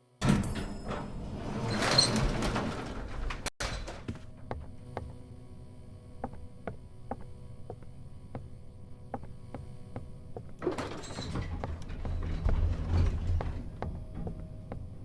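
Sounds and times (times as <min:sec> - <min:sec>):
low steady hum: 0:03.6 - 0:15.0.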